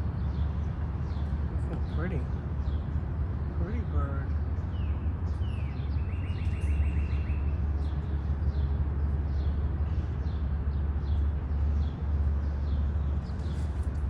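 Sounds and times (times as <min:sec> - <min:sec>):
small birds chirping: 0:00.0 - 0:14.0
bird trill: 0:04.8 - 0:07.6.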